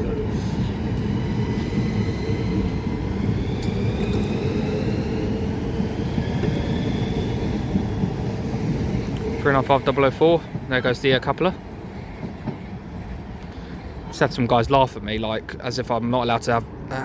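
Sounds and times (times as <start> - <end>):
traction motors whining: 0.0 - 13.7
train wheels rumbling: 0.0 - 16.8.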